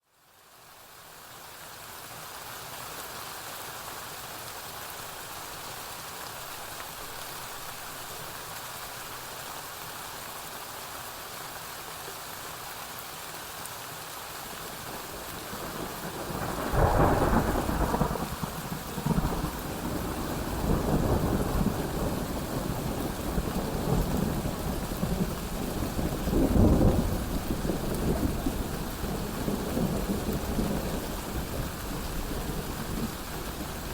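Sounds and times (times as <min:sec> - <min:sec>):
rain hiss: 0:00.1 - 0:33.9
rolling thunder rumble: 0:15.3 - 0:33.9.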